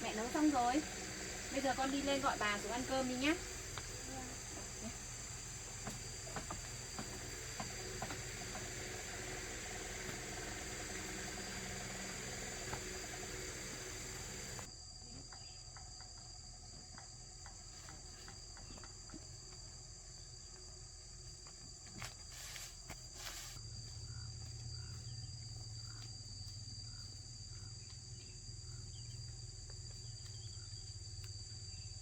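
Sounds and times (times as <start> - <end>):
background hiss: 0.0 - 14.7
insects chirring: 0.0 - 32.0
faint knocks: 3.4 - 14.6.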